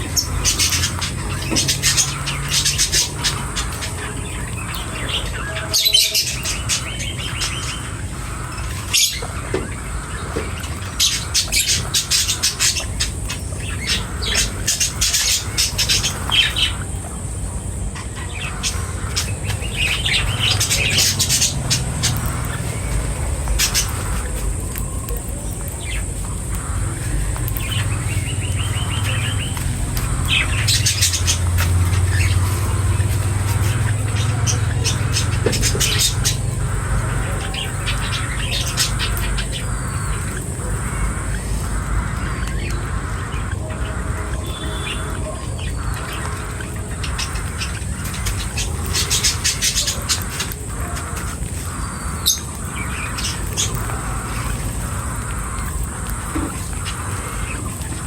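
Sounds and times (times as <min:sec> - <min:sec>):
bird rapid trill: 0:00.0 - 0:58.0
small birds chirping: 0:00.0 - 0:58.0
steady low rumble: 0:00.0 - 0:58.0.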